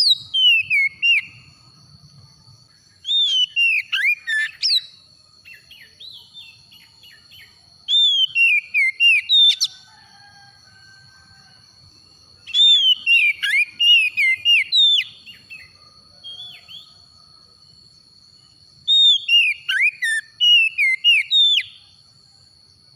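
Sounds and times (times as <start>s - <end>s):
bird singing whistled notes: 0.0s - 1.7s, 2.9s - 9.8s, 12.4s - 17.4s, 18.3s - 22.0s.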